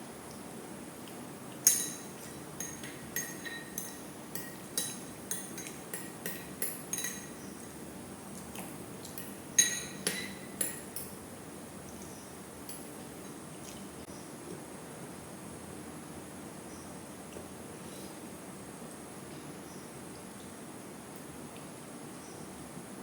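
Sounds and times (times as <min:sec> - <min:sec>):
cutlery clinking on metal dish: 0:01.6 - 0:07.4, 0:09.1 - 0:11.2.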